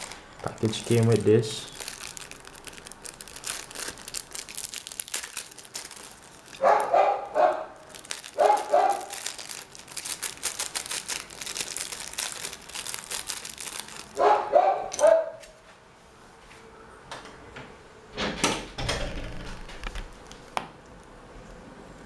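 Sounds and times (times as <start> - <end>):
light crinkling: 0.0 - 14.4
dog barking: 6.6 - 7.8, 8.4 - 9.2, 14.2 - 15.4.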